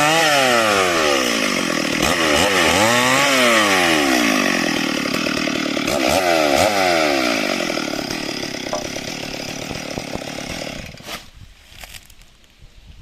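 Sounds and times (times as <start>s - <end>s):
chainsaw engine revving: 0.0s - 11.1s.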